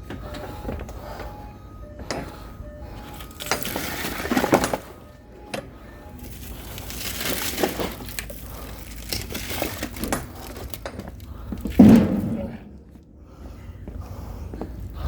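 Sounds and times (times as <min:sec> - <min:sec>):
firewood logs knocking together: 0:06.9 - 0:12.7.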